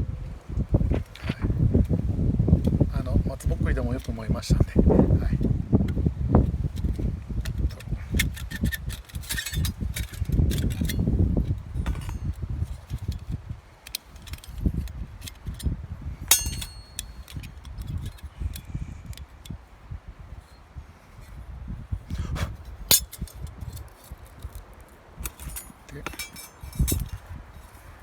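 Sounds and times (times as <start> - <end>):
thin metal parts clinking: 7.6 - 11.1, 11.8 - 15.7, 16.3 - 19.2, 22.9 - 27.9
ringing metallic clink: 11.8 - 12.4, 16.3 - 17.3, 22.9 - 23.4, 25.2 - 27.2
rustling handling noise: 22.6 - 28.0.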